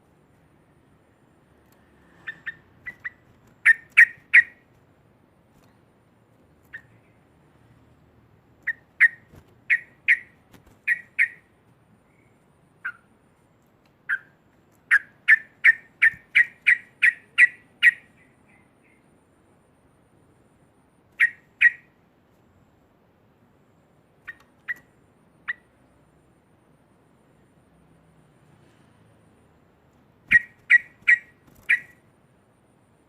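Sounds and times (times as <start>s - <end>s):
bird calling sharp notes: 2.2s - 4.7s, 8.6s - 11.5s, 14.1s - 18.3s, 21.2s - 21.9s, 30.3s - 32.0s.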